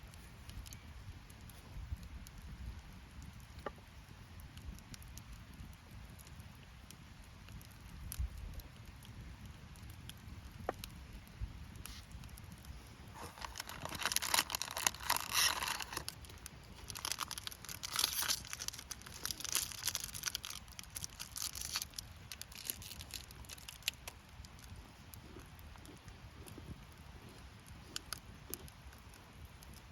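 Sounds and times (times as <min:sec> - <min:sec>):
crinkling and tearing: 0:13.1 - 0:28.7.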